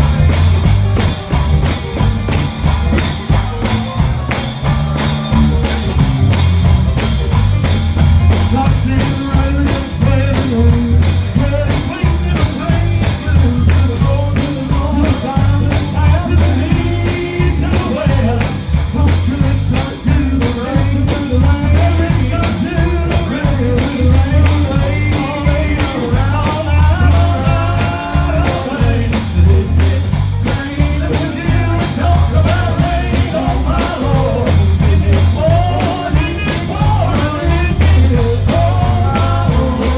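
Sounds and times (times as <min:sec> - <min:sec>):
drums: 0:00.0 - 0:39.9
gospel band playing: 0:00.0 - 0:39.9
heavy bass line: 0:00.0 - 0:39.9
person singing: 0:08.3 - 0:39.9.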